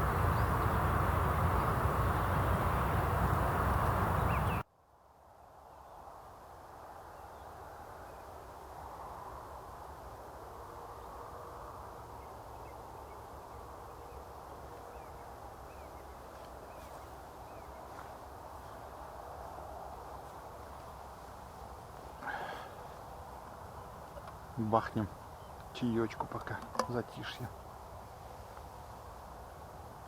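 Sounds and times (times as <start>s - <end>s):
faint distant bird chirps: 0.0s - 4.6s
loud rushing noise: 0.0s - 4.6s.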